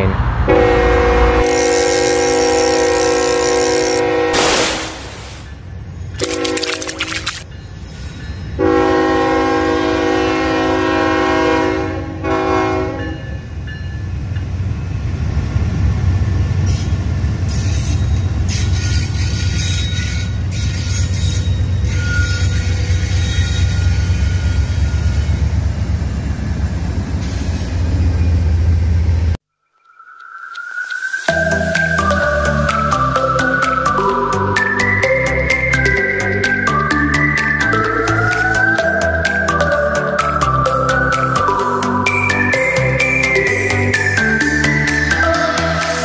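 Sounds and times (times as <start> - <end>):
freight train rumbling past: 0.0 - 6.2, 7.4 - 29.4
locomotive horn blast: 0.1 - 5.0, 6.2 - 7.0, 8.6 - 13.4.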